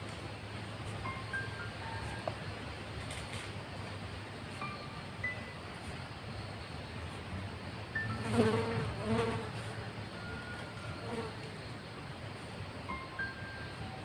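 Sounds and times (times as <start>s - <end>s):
flying insect buzzing: 8.0s - 10.0s.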